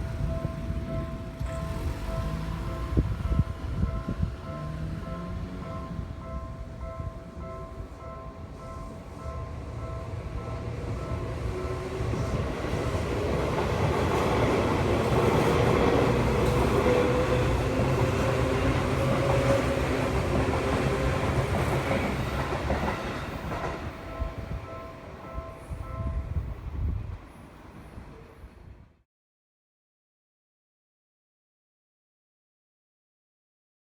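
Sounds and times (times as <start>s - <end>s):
crossing bell dinging: 0.0s - 26.9s
electric train passing: 0.0s - 28.9s.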